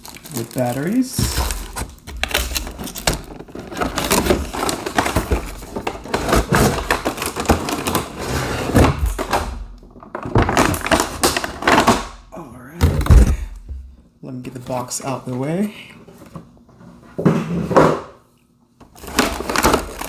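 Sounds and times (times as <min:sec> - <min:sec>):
cardboard box being handled: 0:00.6 - 0:07.0.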